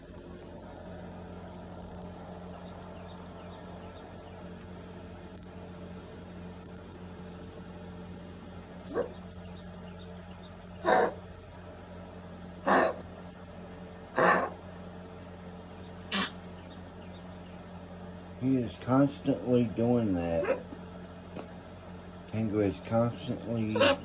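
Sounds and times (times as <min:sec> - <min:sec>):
steady low hum: 0:00.0 - 0:24.0
dog coughing: 0:08.9 - 0:09.2, 0:10.8 - 0:11.2, 0:12.6 - 0:13.0, 0:14.2 - 0:14.6, 0:16.0 - 0:16.5, 0:20.4 - 0:21.6, 0:23.7 - 0:24.0.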